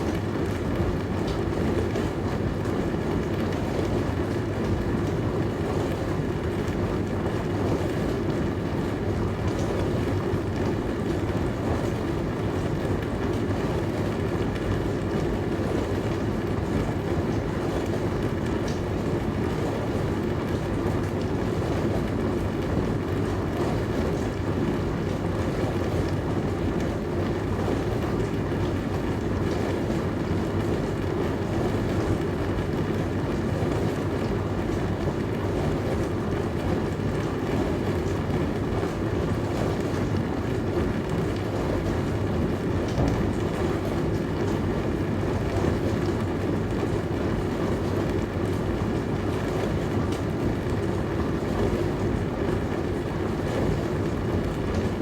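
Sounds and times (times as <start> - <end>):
dishwasher low hum: 35.0 - 48.6.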